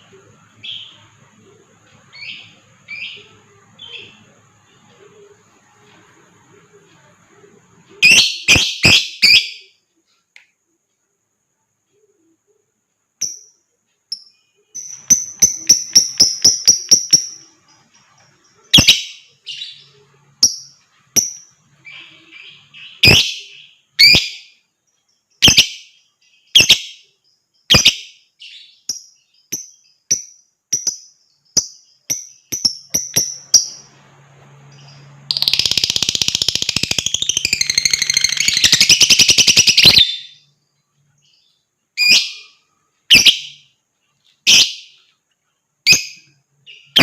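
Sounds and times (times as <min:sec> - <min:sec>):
lovebird chirping: 0:00.0 - 0:10.3, 0:11.6 - 0:45.1, 0:45.8 - 0:47.0
lovebird chattering trill: 0:08.0 - 0:09.7, 0:14.8 - 0:24.5, 0:34.8 - 0:40.4, 0:42.0 - 0:43.6.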